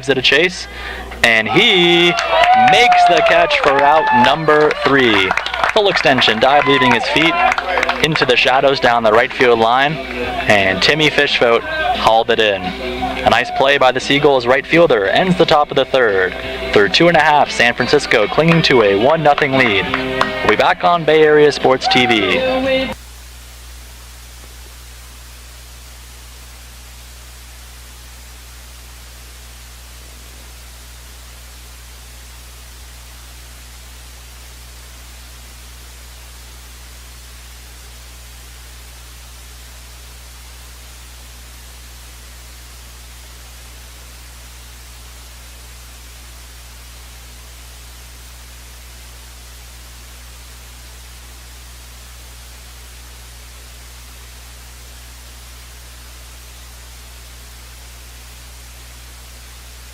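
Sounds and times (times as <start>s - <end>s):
low electrical hum: 0.0s - 59.9s
steady hiss: 21.2s - 59.9s.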